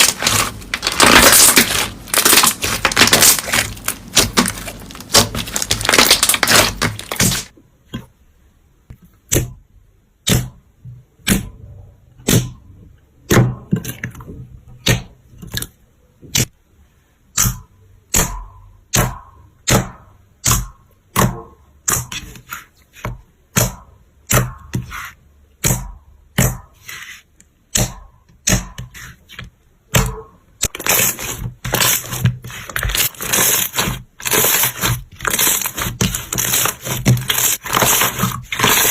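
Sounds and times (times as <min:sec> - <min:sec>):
slime crackling: 0:00.0 - 0:07.5, 0:30.6 - 0:38.9
slime popping: 0:00.0 - 0:07.5.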